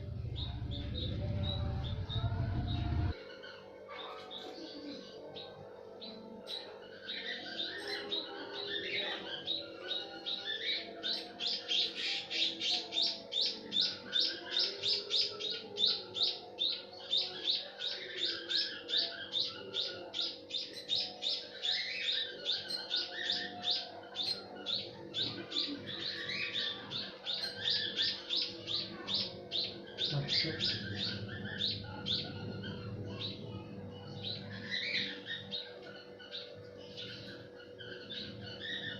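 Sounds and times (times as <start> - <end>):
small bird chirping: 17.2 - 38.9.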